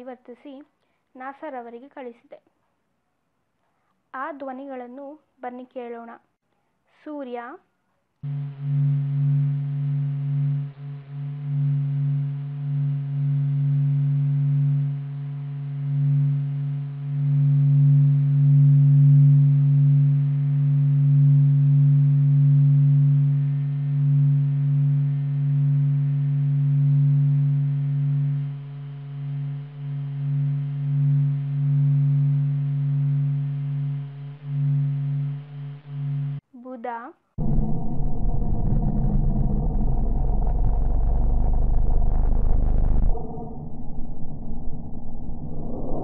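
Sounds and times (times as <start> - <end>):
low droning hum: 8.2 - 36.4, 37.4 - 46.0.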